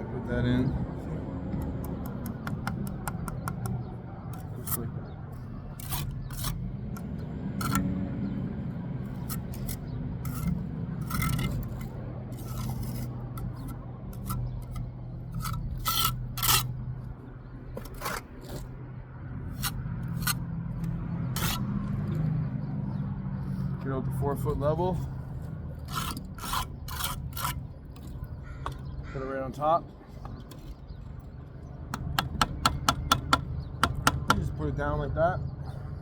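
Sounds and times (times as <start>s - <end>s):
sharp taps and clicks: 1.5s - 3.8s, 31.9s - 34.5s
trowel scraping mortar on brick: 1.8s - 7.9s, 9.0s - 16.8s, 17.7s - 18.8s, 19.5s - 21.8s, 24.5s - 28.9s.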